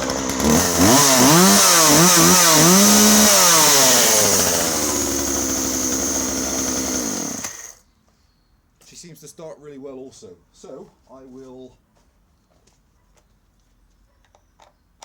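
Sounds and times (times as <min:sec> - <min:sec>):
chainsaw engine revving and idling: 0:00.0 - 0:07.8.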